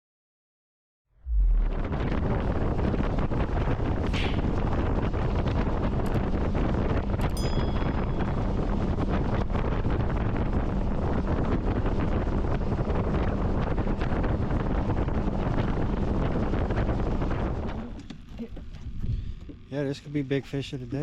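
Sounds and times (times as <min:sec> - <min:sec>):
wind buffeting microphone: 0:01.3 - 0:18.0
click with high ring: 0:07.2 - 0:08.7.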